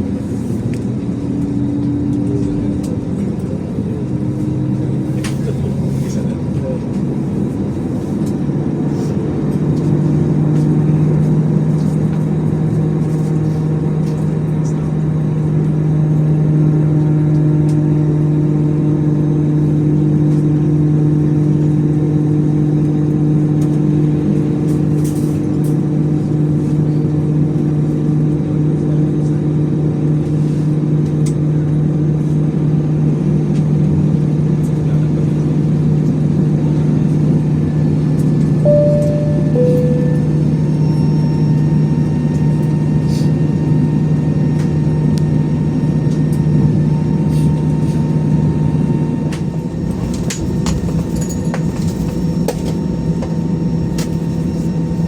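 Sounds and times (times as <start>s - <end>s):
jet cabin drone: 36.2s - 55.0s.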